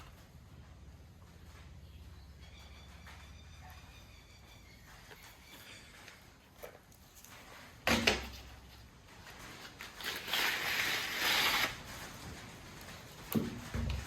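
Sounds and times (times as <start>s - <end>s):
noisy rustle: 7.0s - 14.0s.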